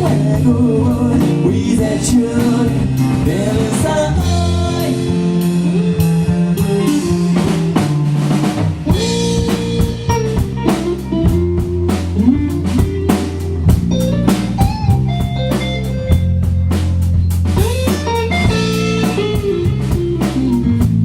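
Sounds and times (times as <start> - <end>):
bass guitar: 0.0 - 21.0
drum kit beat: 0.0 - 21.0
electric guitar melody: 0.0 - 21.0.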